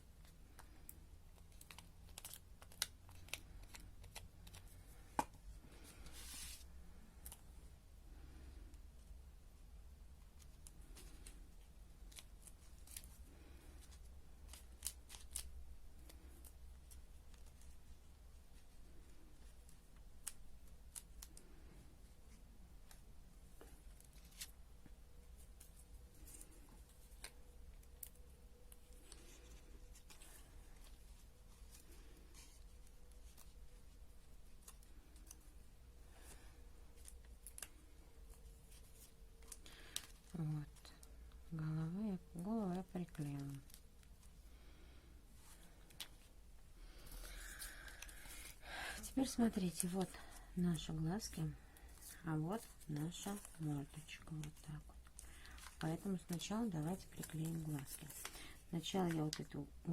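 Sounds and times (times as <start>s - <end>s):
low room hum: 0.0s - 59.9s
paper crinkling: 0.2s - 7.4s, 10.4s - 18.1s, 25.3s - 41.1s, 49.2s - 59.9s
paper rustling: 1.3s - 7.4s, 51.8s - 59.5s.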